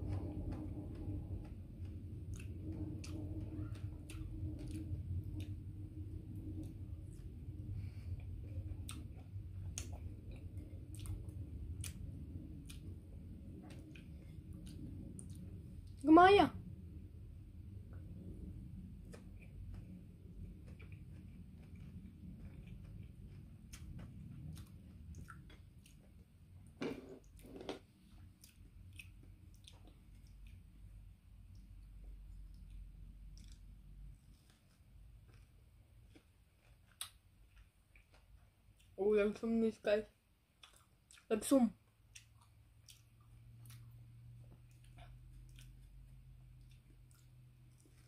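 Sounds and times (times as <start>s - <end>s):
low steady hum: 0.0s - 48.0s
person chewing: 0.1s - 16.0s, 18.9s - 26.5s, 27.2s - 39.0s, 40.4s - 48.0s.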